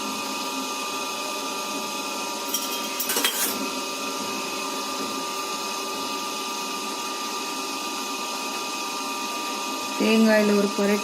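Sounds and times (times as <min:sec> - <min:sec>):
spoon clattering against mould: 0:02.5 - 0:03.6.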